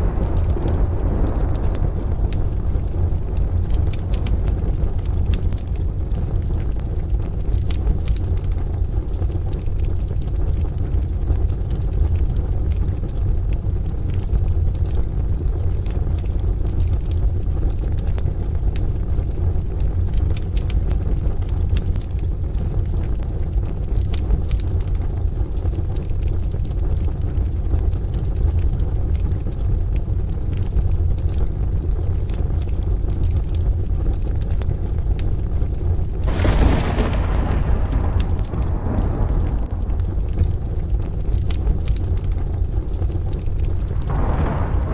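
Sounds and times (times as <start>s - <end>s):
distant thunder: 0.0s - 5.2s, 36.2s - 42.3s, 43.8s - 44.9s
fire low rumble: 0.0s - 44.9s
rain: 0.0s - 44.9s
wood fire crackling: 0.0s - 44.9s.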